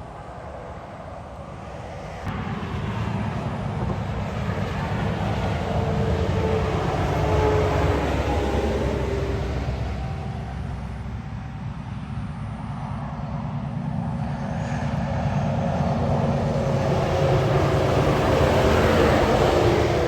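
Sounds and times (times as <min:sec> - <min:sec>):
heavy truck engine rumble: 0:02.3 - 0:11.8, 0:16.0 - 0:20.0.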